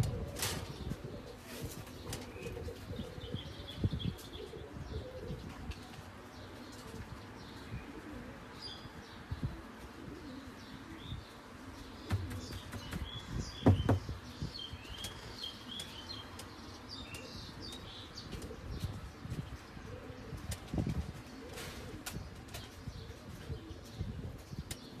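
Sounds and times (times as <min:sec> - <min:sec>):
birds chirping: 0:00.0 - 0:25.0
dull thumps: 0:12.1 - 0:14.2.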